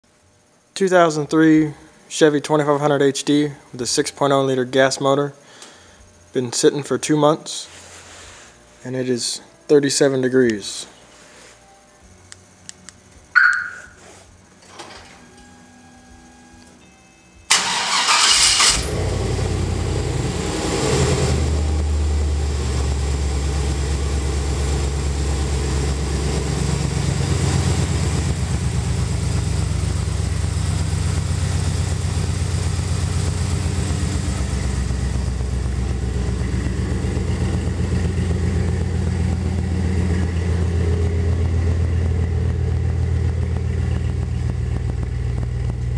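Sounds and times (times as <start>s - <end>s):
short chirp: 13.4s - 14.1s
engine starting and idling: 17.5s - 45.9s.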